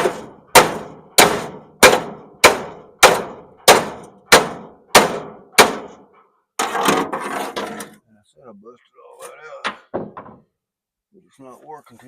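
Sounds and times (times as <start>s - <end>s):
hammer striking metal: 0.0s - 6.0s.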